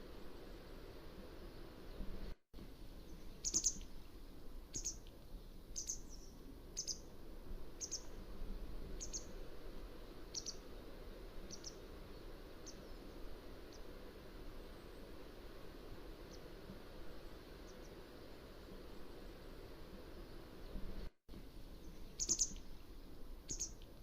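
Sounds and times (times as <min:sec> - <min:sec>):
low background hiss: 0:00.0 - 0:24.0
bird giving high sharp calls: 0:03.4 - 0:03.9, 0:10.3 - 0:10.6, 0:22.2 - 0:22.6, 0:23.5 - 0:23.8.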